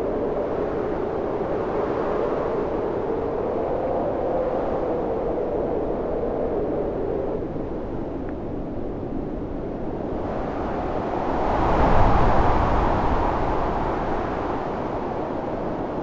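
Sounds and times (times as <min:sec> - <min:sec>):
storm wind blowing: 0:09.2 - 0:16.0.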